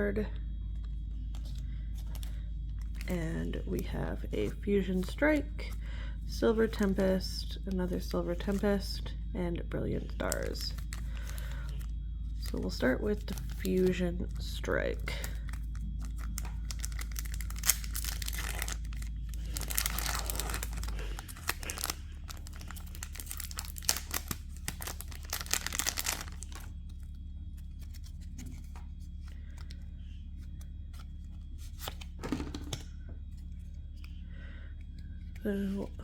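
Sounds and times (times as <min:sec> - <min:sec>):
foil wrapper crinkling and tearing: 0:10.2 - 0:14.0, 0:15.0 - 0:27.0.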